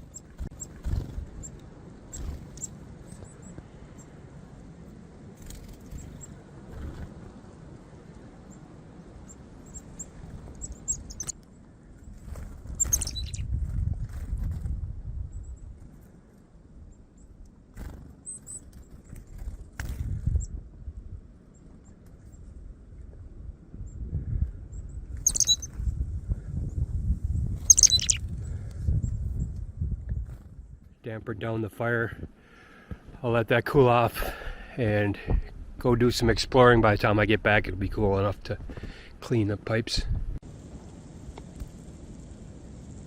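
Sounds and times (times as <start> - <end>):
small birds chirping: 0.0 - 4.2, 5.5 - 7.0, 9.2 - 13.6, 16.9 - 19.5, 24.7 - 25.8, 27.6 - 29.5
bird chirping: 9.6 - 11.4, 12.8 - 13.5, 24.8 - 25.7, 27.6 - 28.2.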